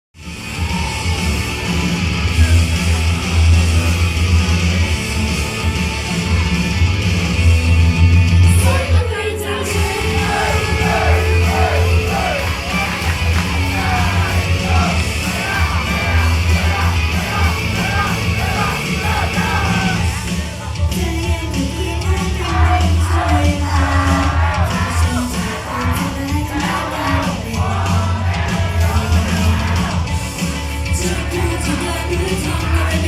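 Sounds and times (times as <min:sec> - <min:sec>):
rock song through a pa: 0:00.2 - 0:33.0
person singing and yelling: 0:08.4 - 0:30.1, 0:30.8 - 0:33.0.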